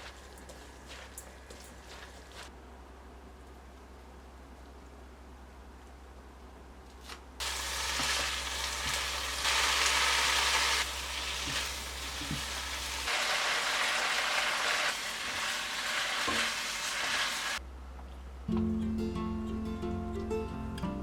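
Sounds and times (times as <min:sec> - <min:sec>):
food sizzling in frying pan: 0:07.4 - 0:17.6.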